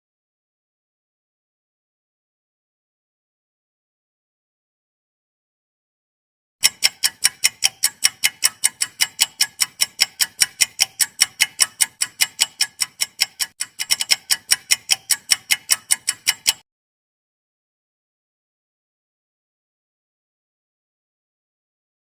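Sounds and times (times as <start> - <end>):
fast clock ticking: 6.6 - 16.6.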